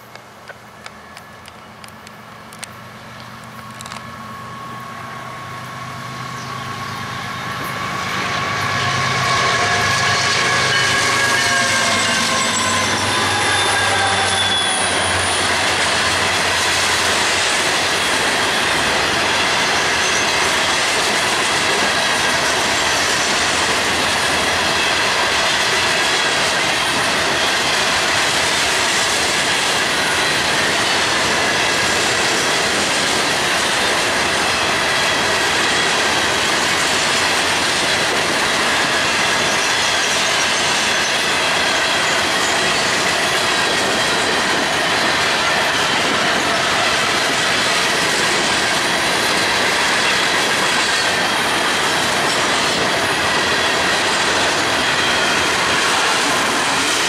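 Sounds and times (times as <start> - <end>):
diesel locomotive engine drone: 0.0 - 57.0
high wheel squeal: 3.6 - 21.2, 29.9 - 57.0.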